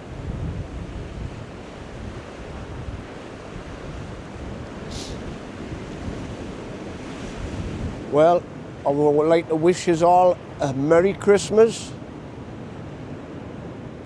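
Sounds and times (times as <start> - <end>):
sea surf on rocky shore: 0.0 - 14.0
wind buffeting microphone: 0.0 - 14.0
brief hiss: 4.9 - 5.3.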